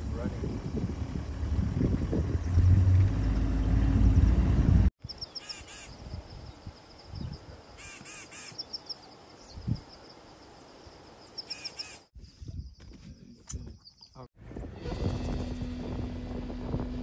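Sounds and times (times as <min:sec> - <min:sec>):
short harsh bird calls: 0:05.1 - 0:06.0, 0:07.8 - 0:08.9, 0:11.4 - 0:12.1.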